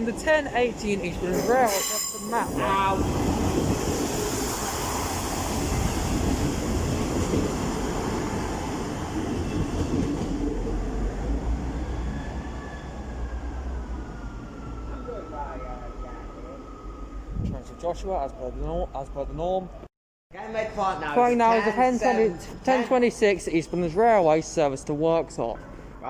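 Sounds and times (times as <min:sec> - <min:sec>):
train wheels rolling over rails: 0:02.9 - 0:12.4.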